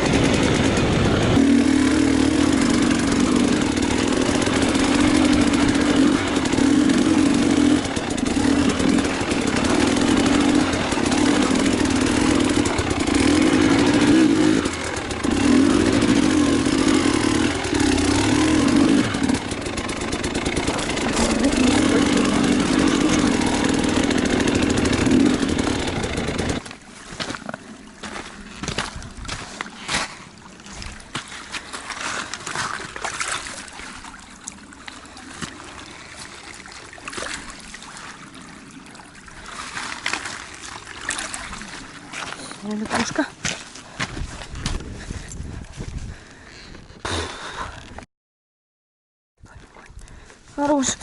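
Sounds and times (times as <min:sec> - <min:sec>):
motorcycle engine revving: 0:00.0 - 0:26.7.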